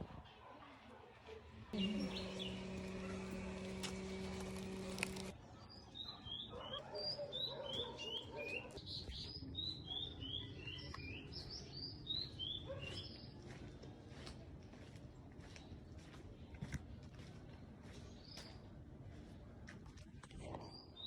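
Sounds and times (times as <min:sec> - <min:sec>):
small birds chirping: 0:01.8 - 0:05.3.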